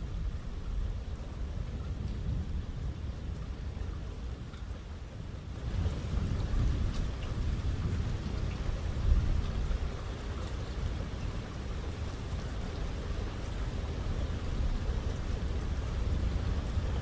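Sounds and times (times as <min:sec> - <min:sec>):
rolling thunder rumble: 0:00.0 - 0:04.1
heavy rain falling: 0:00.0 - 0:17.0.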